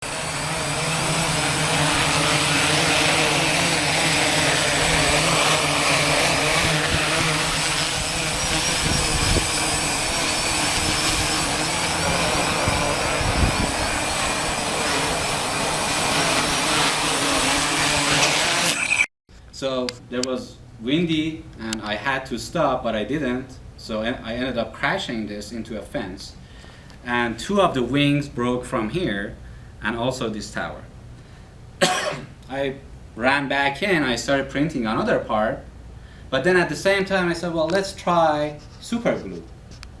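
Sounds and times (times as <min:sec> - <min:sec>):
drone propellers whirring: 0:00.0 - 0:19.1
wind on the microphone: 0:08.0 - 0:14.7.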